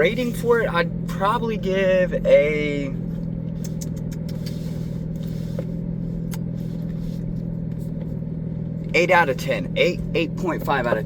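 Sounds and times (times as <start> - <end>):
car engine droning at cruise: 0.0 - 11.0
road noise: 0.0 - 11.0.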